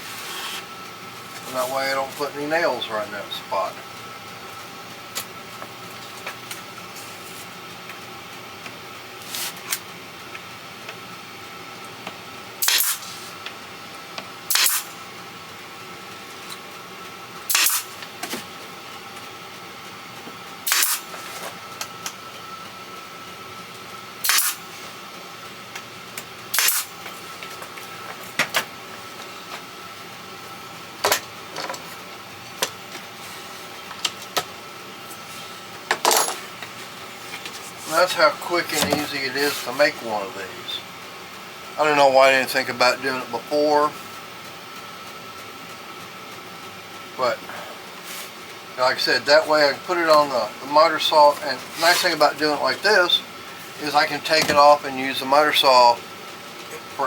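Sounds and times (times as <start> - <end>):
steady background hum: 0.0 - 57.0
nail gun firing into wood: 12.6 - 13.0, 14.5 - 14.9, 17.5 - 17.9, 20.7 - 21.1, 24.2 - 24.6, 26.5 - 26.9.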